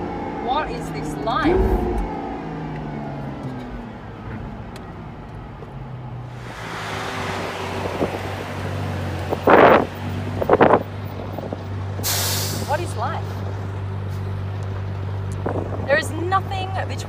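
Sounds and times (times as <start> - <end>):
car engine running low: 1.2 - 12.0
wind noise: 1.4 - 2.5.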